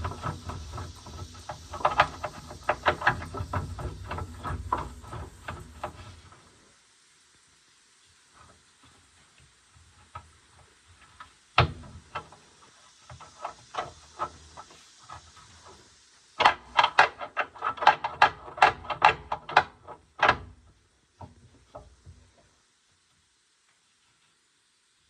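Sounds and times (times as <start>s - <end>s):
knocks and clacks on machine: 16.4s - 20.6s.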